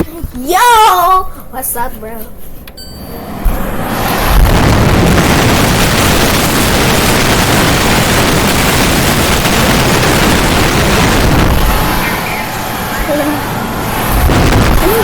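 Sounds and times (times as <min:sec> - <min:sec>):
harsh distorted noise blast: 0:03.0 - 0:15.0.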